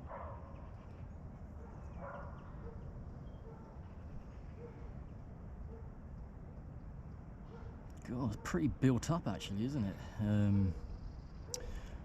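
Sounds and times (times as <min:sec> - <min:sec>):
dog barking in the distance: 0:00.0 - 0:00.5, 0:01.6 - 0:03.8, 0:04.5 - 0:05.0, 0:05.6 - 0:06.0, 0:07.5 - 0:08.6.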